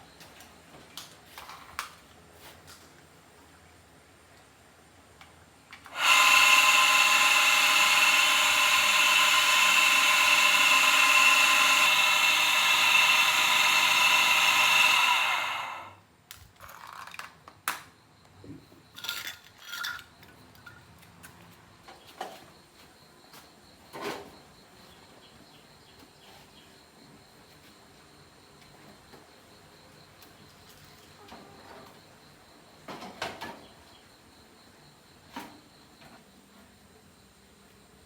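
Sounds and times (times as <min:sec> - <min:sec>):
electric power tool running: 0:05.9 - 0:15.9.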